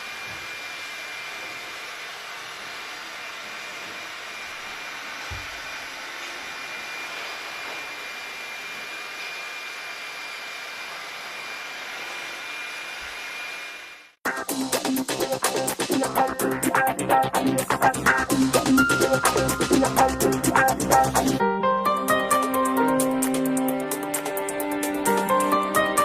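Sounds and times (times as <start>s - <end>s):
hot air blower rushing: 0.0s - 14.2s.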